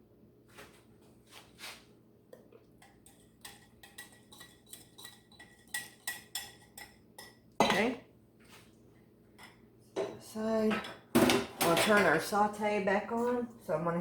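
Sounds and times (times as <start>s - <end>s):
metal utensil clinking on steel pot: 2.8s - 7.9s.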